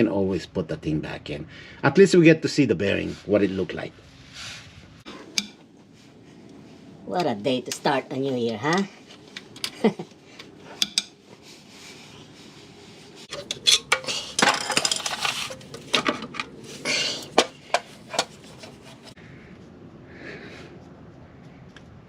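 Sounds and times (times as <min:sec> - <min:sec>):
metal tools clinking: 0:10.7 - 0:11.2, 0:13.3 - 0:19.1
metal parts scraping: 0:13.3 - 0:19.2.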